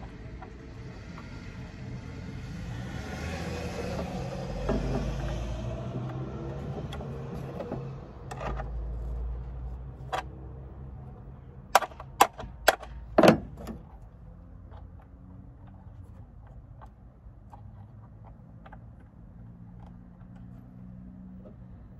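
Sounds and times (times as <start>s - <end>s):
plastic car parts clicking: 11.7s - 21.6s.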